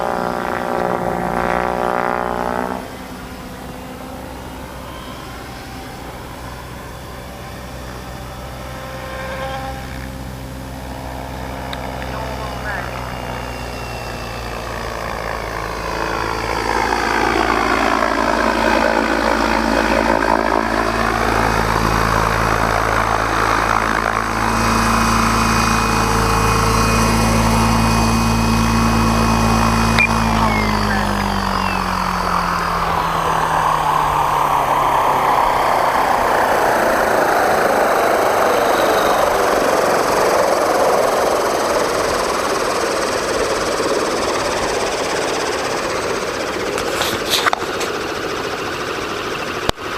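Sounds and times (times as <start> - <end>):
rc helicopter motor and rotor drone: 0.0 - 49.9.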